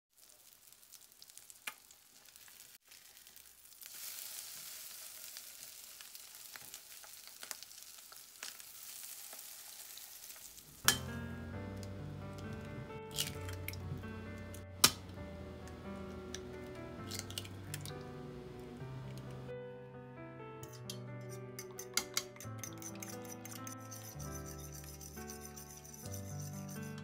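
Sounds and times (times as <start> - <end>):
patties sizzling in oil: 0.1 - 11.1
background music: 10.8 - 27.0.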